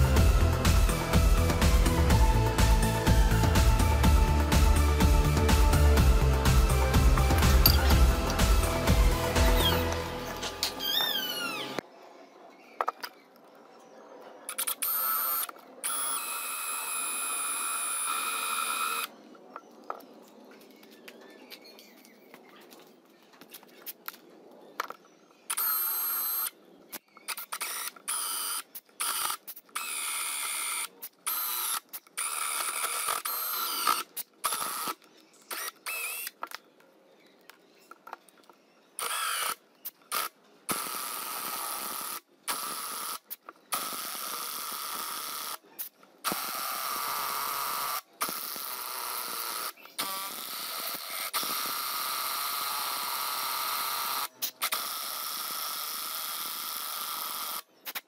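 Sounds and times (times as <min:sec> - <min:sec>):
small electric motor whirring: 0:14.5 - 0:19.1, 0:25.5 - 0:26.5, 0:27.3 - 0:36.4, 0:39.0 - 0:45.6, 0:46.3 - 0:57.6.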